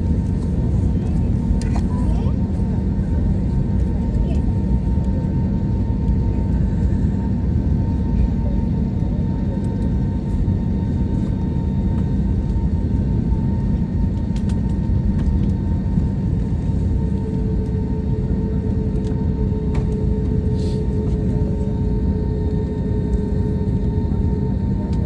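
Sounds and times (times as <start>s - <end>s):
airliner cabin rumble: 0.0s - 25.0s.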